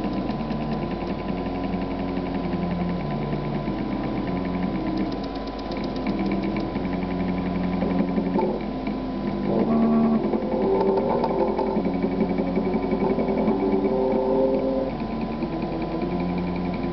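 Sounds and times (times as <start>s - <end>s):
fast faint ticks: 0.0s - 1.2s, 2.3s - 7.8s
stepper motors whining: 0.0s - 16.9s.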